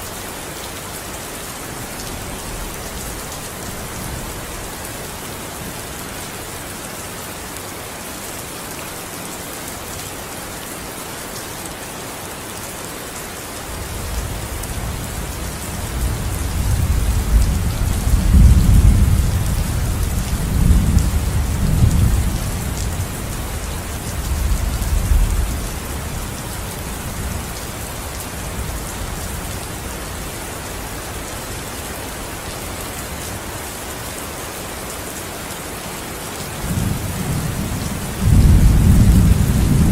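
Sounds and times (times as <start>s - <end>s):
heavy rain hissing: 0.0s - 39.9s
thunder rumbling: 15.8s - 23.1s, 36.7s - 39.9s.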